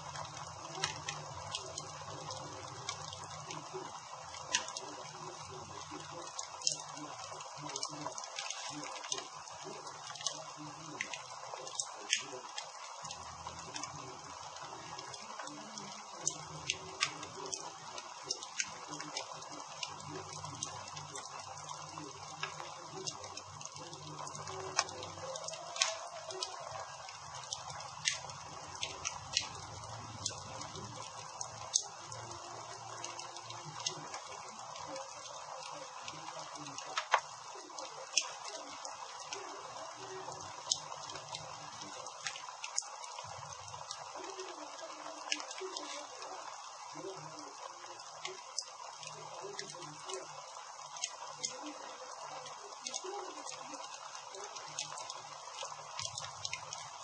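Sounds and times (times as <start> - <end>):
campfire crackling and popping: 0.0 - 57.0
low fire hiss: 0.0 - 57.0
wood popping and snapping: 4.3 - 4.8, 10.0 - 13.9, 16.2 - 17.6, 24.2 - 35.4, 36.4 - 38.7.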